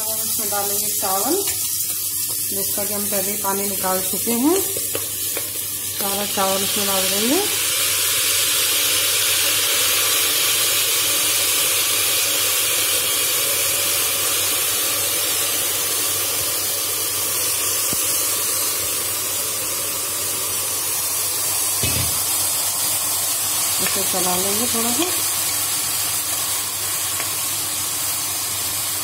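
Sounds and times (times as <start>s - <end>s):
food sizzling in pot: 0.0s - 29.0s.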